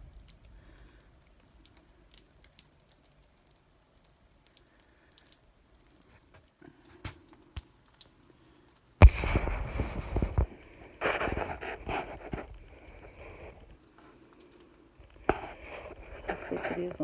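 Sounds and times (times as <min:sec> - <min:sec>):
faint light ticks: 0:00.0 - 0:06.6.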